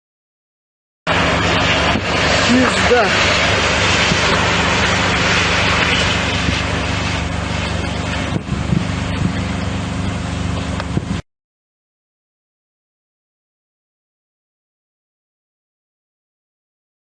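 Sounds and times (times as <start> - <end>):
loud rushing noise: 1.1 - 11.2
low steady hum: 1.1 - 11.2.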